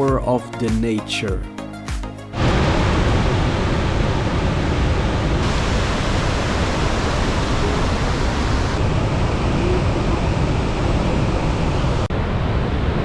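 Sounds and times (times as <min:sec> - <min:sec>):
waterfall rushing: 0:02.4 - 0:12.0.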